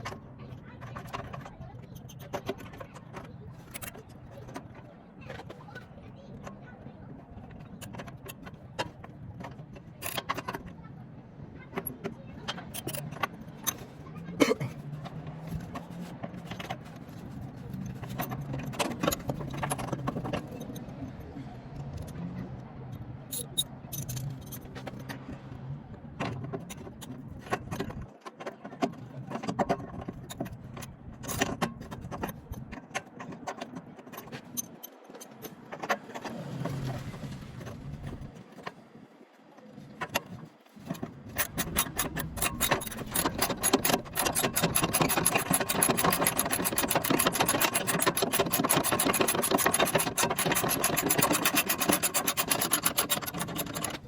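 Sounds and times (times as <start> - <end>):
hand tool scraping metal: 40.9 - 54.0
ratchet wrench clicking: 41.3 - 54.0.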